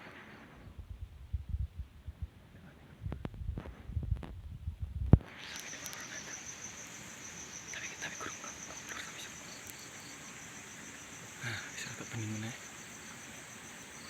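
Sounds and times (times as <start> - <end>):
crickets chirping: 5.2 - 14.0.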